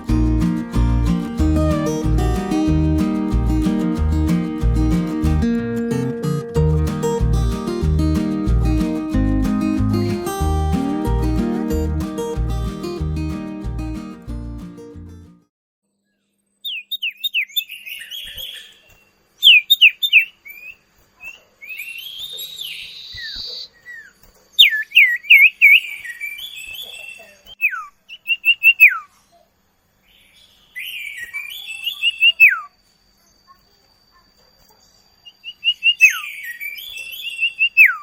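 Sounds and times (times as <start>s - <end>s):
bird chirping and whistling: 1.5s - 2.7s, 16.7s - 24.0s, 30.8s - 32.7s, 35.3s - 38.0s.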